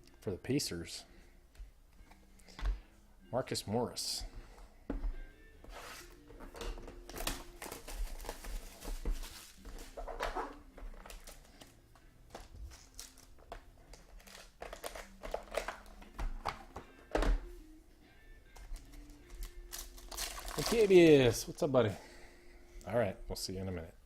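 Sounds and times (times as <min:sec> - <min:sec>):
cards clicking and rustling: 0:05.9 - 0:16.9, 0:18.5 - 0:21.1
plastic wrapper crinkling: 0:12.3 - 0:15.9, 0:19.3 - 0:21.2.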